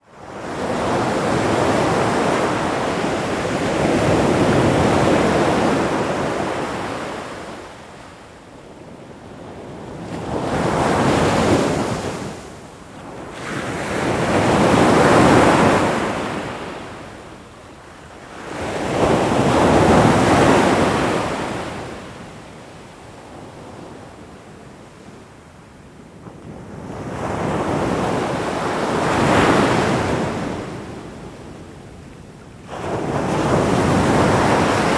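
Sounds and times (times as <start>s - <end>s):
ocean waves washing onto shore: 26.4s - 34.9s.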